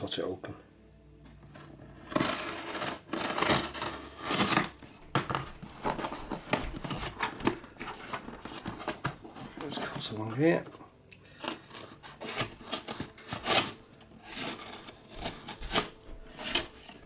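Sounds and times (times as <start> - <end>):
cutting into packaging: 2.0 - 10.1, 11.4 - 17.0.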